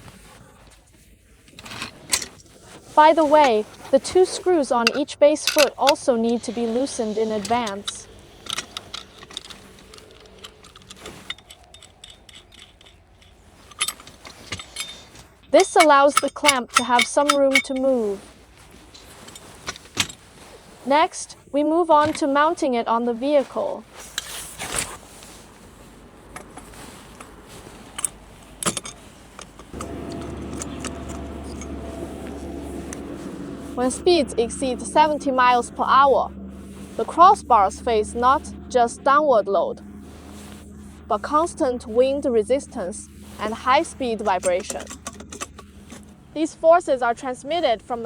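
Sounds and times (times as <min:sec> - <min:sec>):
steady hum: 0:01.4 - 0:20.2, 0:24.6 - 0:48.0
metal roof rack clinking: 0:01.4 - 0:21.2, 0:21.9 - 0:48.0
small metal clicks and rattles: 0:01.5 - 0:20.5, 0:26.3 - 0:38.7, 0:40.3 - 0:46.2.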